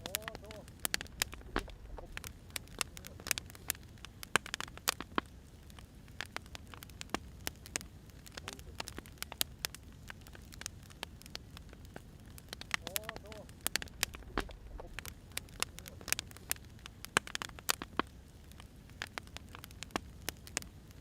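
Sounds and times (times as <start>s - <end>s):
low steady rumble: 0.0s - 4.6s, 6.6s - 17.3s
wood fire crackling: 0.0s - 21.0s.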